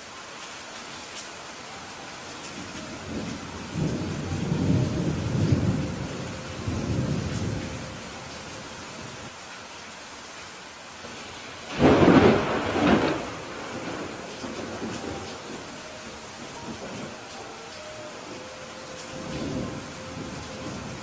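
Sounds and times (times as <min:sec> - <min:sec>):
steady rain falling: 0:00.0 - 0:21.0
rolling thunder rumble: 0:02.6 - 0:08.3, 0:11.6 - 0:17.4, 0:19.1 - 0:21.0.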